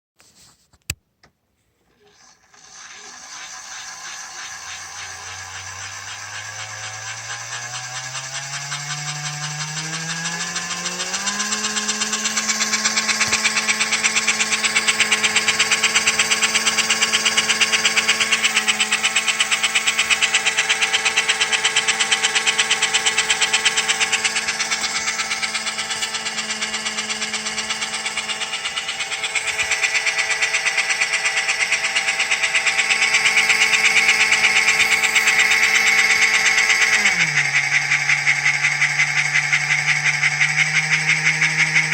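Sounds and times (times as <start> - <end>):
toy train motor whine: 1.8 - 41.9
fast rattling buzz: 1.9 - 41.9.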